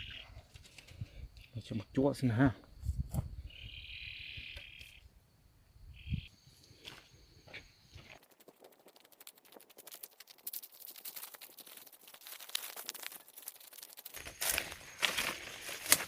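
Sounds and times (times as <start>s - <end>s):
quiet dry crackling: 6.6s - 16.0s.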